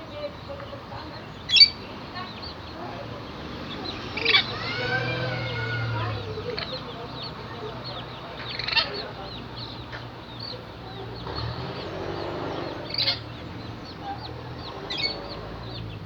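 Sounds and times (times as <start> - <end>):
birds chirping: 0.0 - 16.0
wavering bird call: 1.5 - 1.8.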